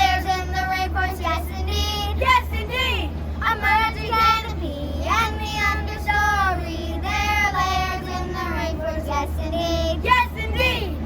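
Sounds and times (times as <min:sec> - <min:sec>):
child singing: 0:00.0 - 0:11.0
steady low hum: 0:00.0 - 0:11.0.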